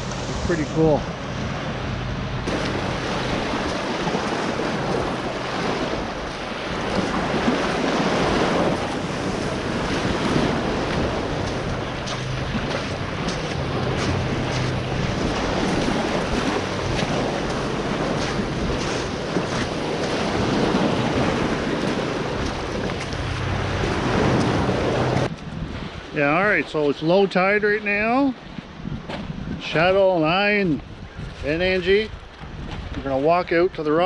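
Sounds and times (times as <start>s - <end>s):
wind on microphone: 0.0s - 26.9s, 27.8s - 34.0s
waves washing on rocky shore: 2.4s - 28.3s.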